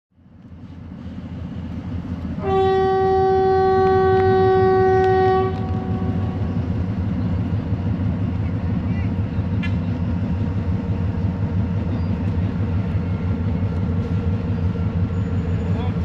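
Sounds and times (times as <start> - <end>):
train running rumble: 0.2 - 16.0
train horn blast: 2.4 - 6.6.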